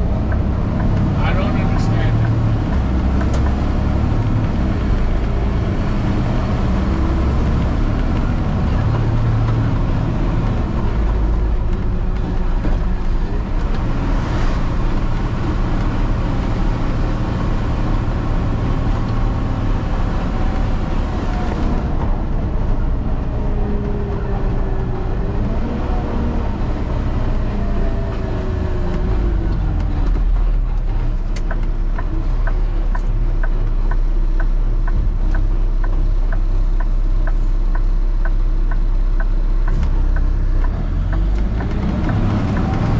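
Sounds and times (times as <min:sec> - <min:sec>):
truck diesel engine running: 0:00.0 - 0:42.9
regular ticking: 0:30.8 - 0:42.9.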